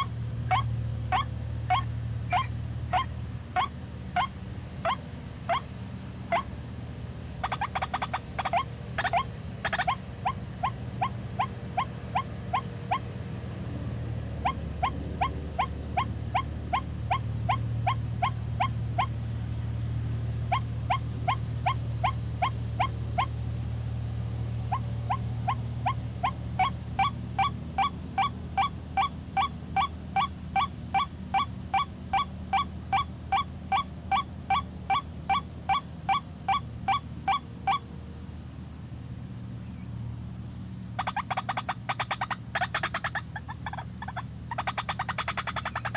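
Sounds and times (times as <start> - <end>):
waterhen calls: 0.0 - 6.6, 7.3 - 13.2, 14.4 - 19.2, 20.4 - 23.4, 24.6 - 38.0, 40.9 - 45.9.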